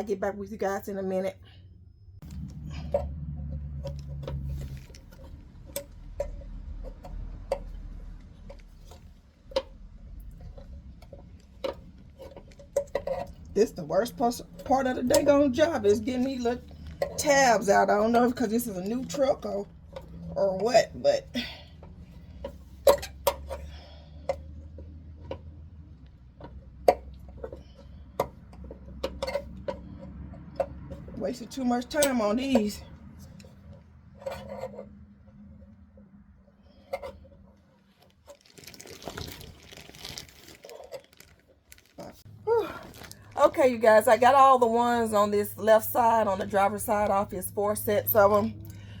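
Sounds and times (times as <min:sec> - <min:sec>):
low hum: 0:00.9 - 0:23.0.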